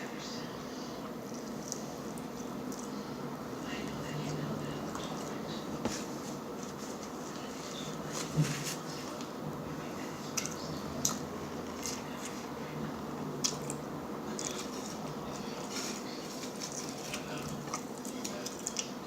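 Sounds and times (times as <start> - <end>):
wet chewing: 13.4 - 15.8, 16.4 - 19.0.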